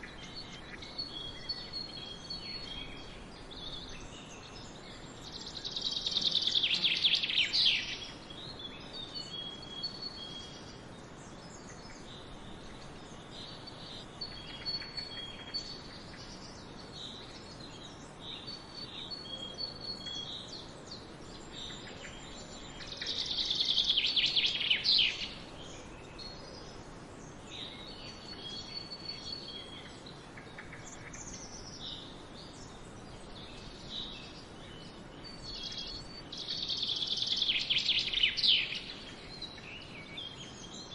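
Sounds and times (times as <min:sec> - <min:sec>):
faint outdoor hiss: 0:00.0 - 0:40.9
songbirds singing and chirping: 0:00.0 - 0:40.9.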